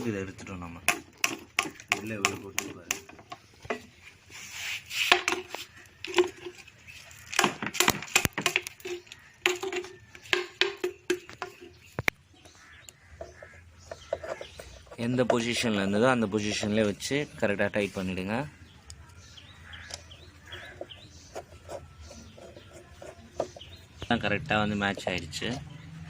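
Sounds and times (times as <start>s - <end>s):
clicks and knocks of parts: 5.1s - 12.2s.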